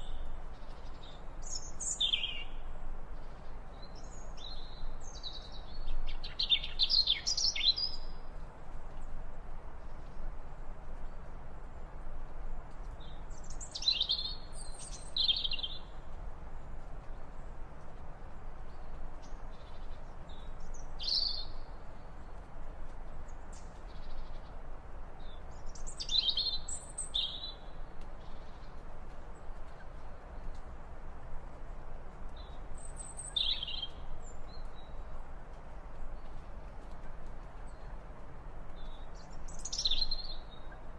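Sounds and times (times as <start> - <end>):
low outdoor background hiss: 0.0 - 40.9
birds chirping: 32.3 - 35.3.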